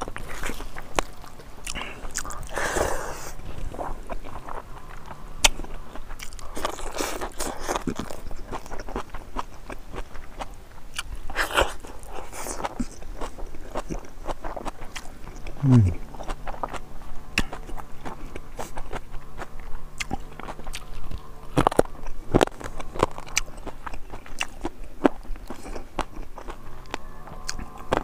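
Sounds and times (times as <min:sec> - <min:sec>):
man chewing: 0:00.0 - 0:28.0.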